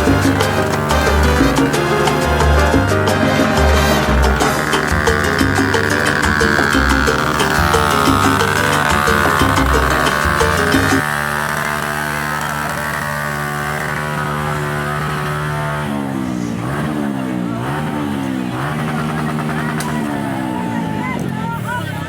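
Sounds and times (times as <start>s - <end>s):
music: 0.0s - 11.0s
motorcycle engine idling and revving: 0.0s - 22.0s.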